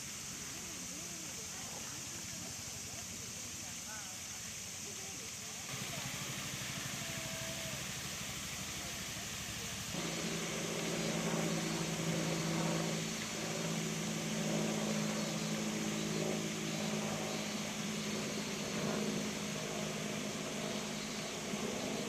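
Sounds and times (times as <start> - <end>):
high hiss: 0.0 - 22.0
low mechanical hum: 5.7 - 22.0.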